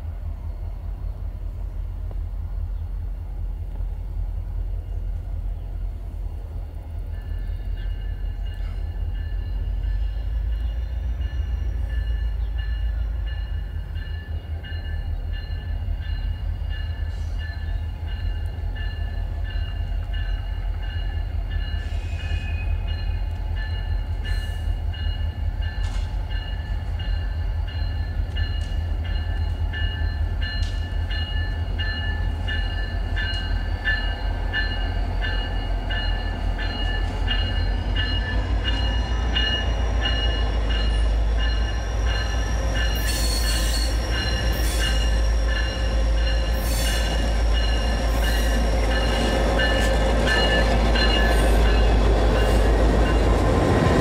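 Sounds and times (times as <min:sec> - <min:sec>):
train low rumble: 0:00.0 - 0:54.0.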